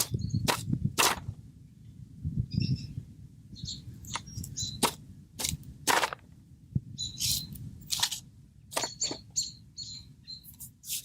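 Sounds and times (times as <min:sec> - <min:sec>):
small birds chirping: 0:00.0 - 0:00.7, 0:02.4 - 0:05.0, 0:06.9 - 0:07.6, 0:08.7 - 0:11.0
wind rumble on microphone: 0:00.0 - 0:08.8.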